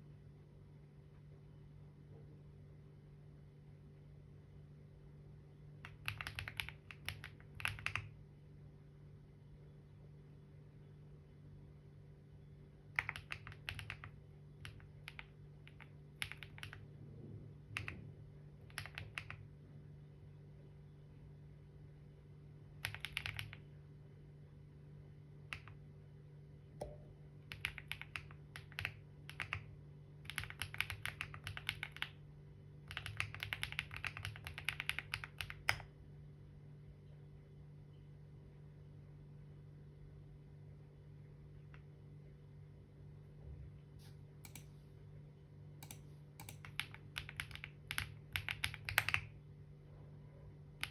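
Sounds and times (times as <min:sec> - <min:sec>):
faint steady hum: 0:00.0 - 0:50.9
typing on computer keyboard: 0:05.8 - 0:08.2, 0:13.0 - 0:16.9, 0:17.7 - 0:19.4, 0:22.8 - 0:23.7, 0:25.5 - 0:25.8, 0:26.8 - 0:32.2, 0:32.9 - 0:35.9, 0:44.4 - 0:44.6, 0:45.8 - 0:49.4.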